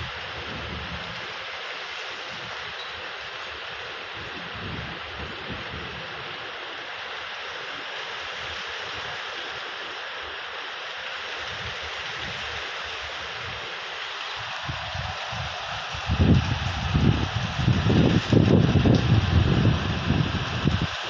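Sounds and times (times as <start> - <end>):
steady rainfall: 0.0 - 21.0
low rumbling: 14.5 - 20.9.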